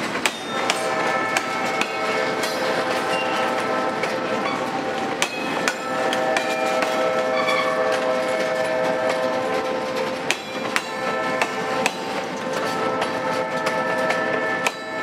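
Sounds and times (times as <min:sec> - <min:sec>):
metallic wheel squeal: 0:03.0 - 0:03.6, 0:05.3 - 0:09.1.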